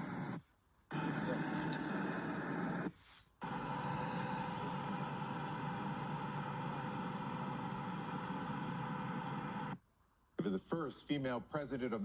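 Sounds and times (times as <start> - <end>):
machine humming: 0.0 - 9.8.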